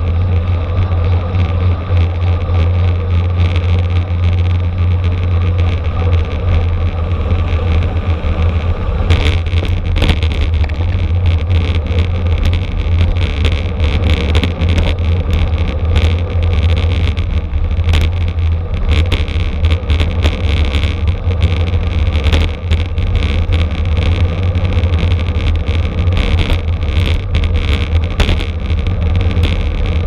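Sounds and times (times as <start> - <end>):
road and tyre hiss: 0.0 - 30.0
wind buffeting microphone: 0.0 - 30.0
small clicks and rattles: 8.5 - 30.0.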